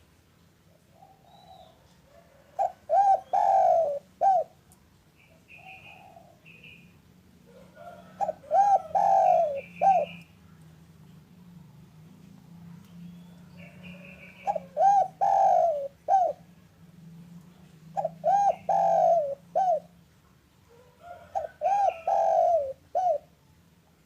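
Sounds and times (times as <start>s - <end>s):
dove cooing: 0.7s - 4.6s, 5.5s - 6.8s, 7.5s - 10.3s, 13.4s - 16.6s, 17.5s - 20.0s, 20.7s - 23.4s.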